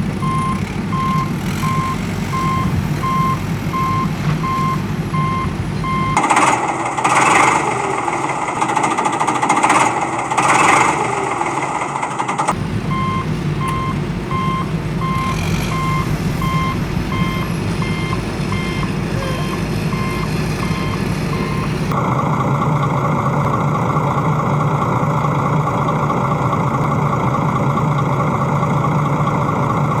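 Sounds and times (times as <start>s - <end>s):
reversing alarm beeping: 0.0s - 22.0s
loud noisy blasts: 0.0s - 23.4s
truck engine running: 0.0s - 30.0s.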